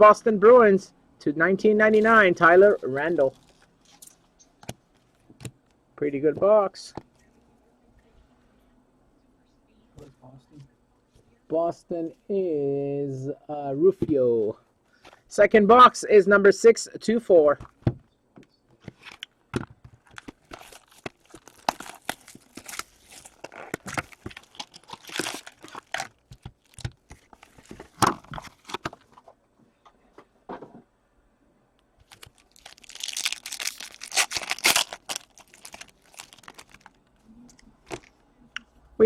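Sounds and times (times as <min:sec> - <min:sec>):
packaging tearing and crinkling: 0:20.1 - 0:28.8, 0:32.0 - 0:37.0.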